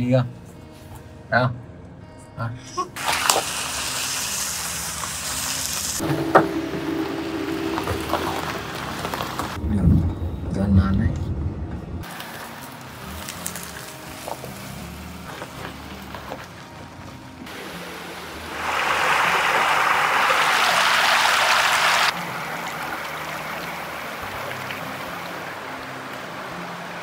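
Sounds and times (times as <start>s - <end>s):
stream water rushing over rocks: 17.5s - 27.0s.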